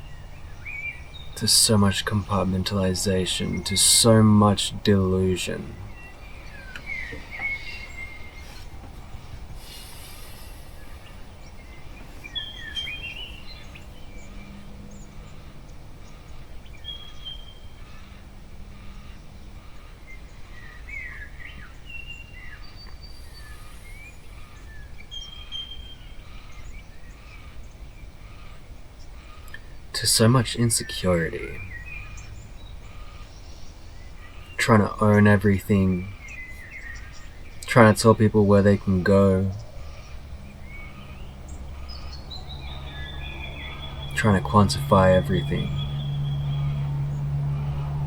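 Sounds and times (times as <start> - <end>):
low background rumble: 0.0 - 23.2, 25.8 - 48.0
birds chirping and whistling: 0.0 - 48.0.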